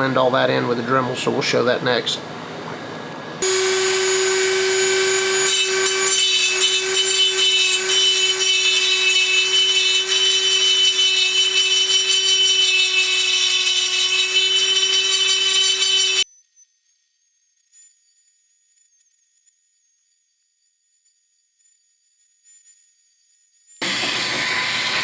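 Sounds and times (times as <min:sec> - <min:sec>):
rotary tool grinding metal: 0:03.4 - 0:16.2, 0:23.8 - 0:25.0.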